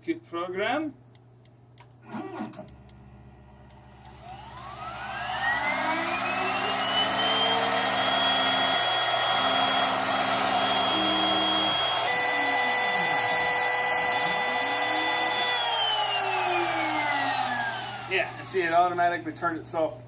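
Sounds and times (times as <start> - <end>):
stepper motor tones: 2.0 - 19.5
cutting motor whine: 3.4 - 19.0.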